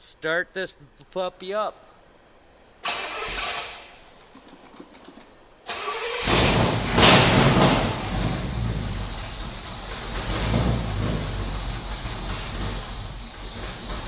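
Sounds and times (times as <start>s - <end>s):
engine starter cranking: 2.8s - 3.9s, 5.6s - 14.0s
engine idling: 5.7s - 14.0s.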